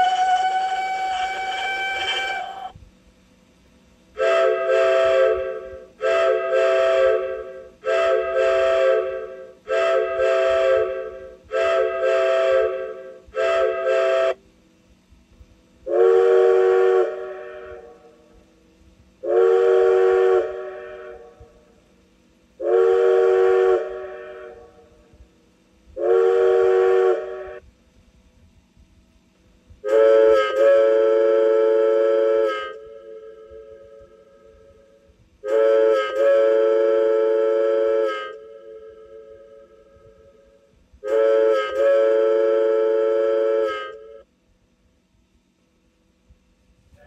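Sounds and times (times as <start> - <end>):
train whistle blasts from speaker: 0.0 - 2.8, 4.2 - 14.5, 15.8 - 18.4, 19.2 - 22.0, 22.6 - 25.2, 25.9 - 27.7, 29.7 - 44.3.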